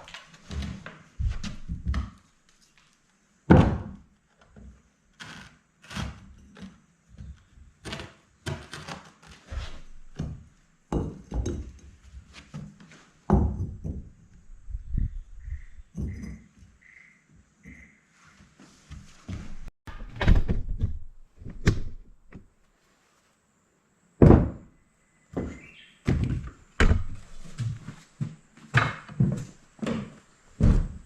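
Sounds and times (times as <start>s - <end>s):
knocks and thuds: 3.5s - 4.0s, 19.9s - 22.5s, 24.2s - 24.7s, 25.3s - 27.2s, 30.6s - 31.0s.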